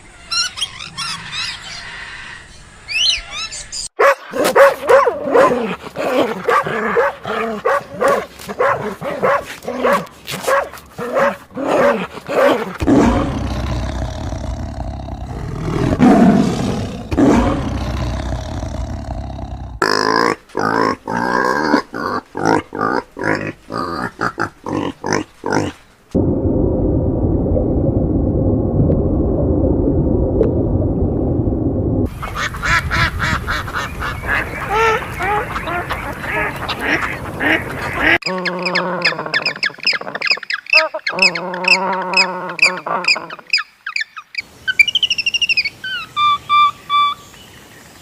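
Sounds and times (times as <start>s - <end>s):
animal calls: 32.2s - 47.2s.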